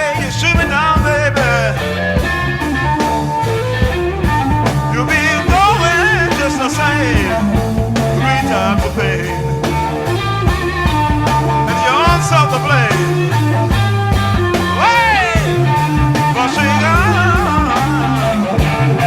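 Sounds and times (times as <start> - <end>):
bass guitar: 0.0 - 19.0
drums: 0.0 - 19.0
electric guitar lead: 0.0 - 19.0.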